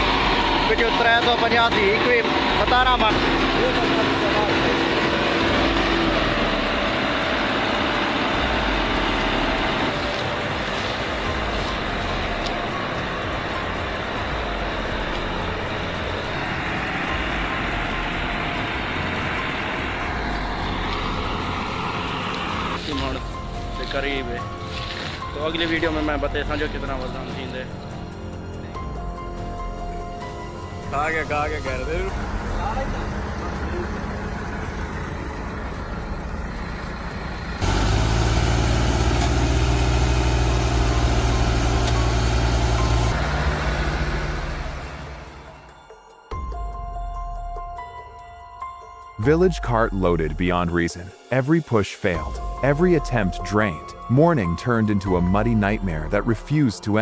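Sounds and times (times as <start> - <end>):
tractor engine running: 0.0 - 45.8.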